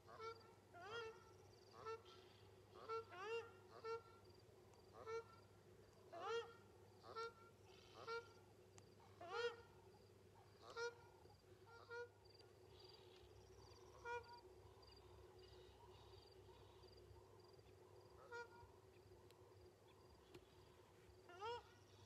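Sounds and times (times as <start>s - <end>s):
bird honking: 0.1s - 4.2s, 5.0s - 5.4s, 6.2s - 8.4s, 9.2s - 9.7s, 10.6s - 12.2s, 13.9s - 14.4s, 18.2s - 18.7s, 21.3s - 22.0s.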